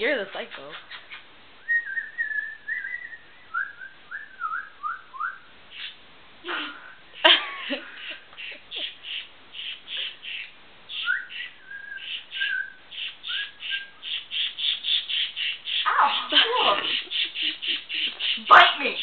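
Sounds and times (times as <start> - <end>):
scratchy bird chirps: 0.4 - 3.2, 5.7 - 6.0, 8.0 - 19.0
pet bird whistling: 0.7 - 6.0, 10.9 - 19.0.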